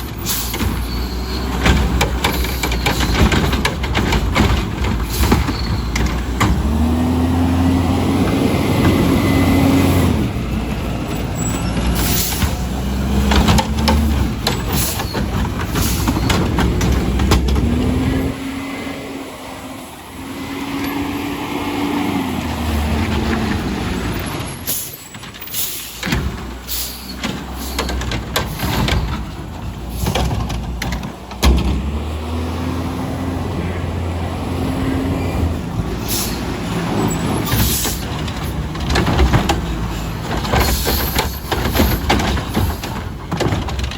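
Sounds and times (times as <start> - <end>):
sharp knocks and clattering: 0.0 - 7.2, 10.1 - 18.2, 22.7 - 32.2, 35.8 - 43.9
garbage truck engine revving: 0.0 - 43.9.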